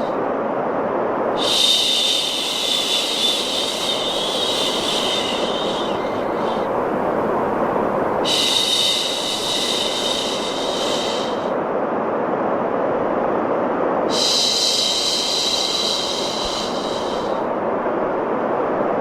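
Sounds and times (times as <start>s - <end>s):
white noise: 0.0s - 19.0s
person shushing: 1.4s - 6.8s, 8.2s - 11.5s.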